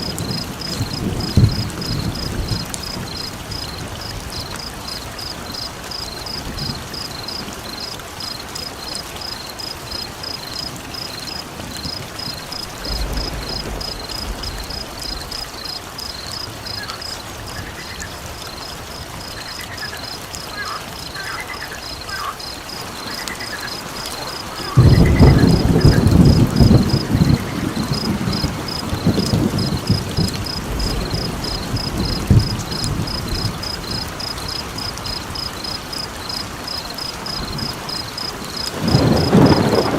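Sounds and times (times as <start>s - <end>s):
thunder rumbling: 0.0s - 7.5s, 10.8s - 18.4s, 23.6s - 39.9s
steady rain: 0.0s - 39.9s.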